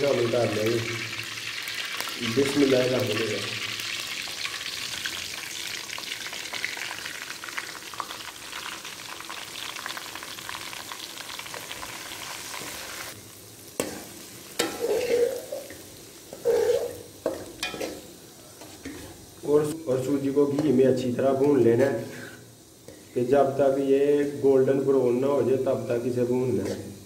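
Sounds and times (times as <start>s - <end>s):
semolina sizzling in hot fat: 0.0s - 27.0s
stirring knocks and scrapes in pan: 13.8s - 19.2s.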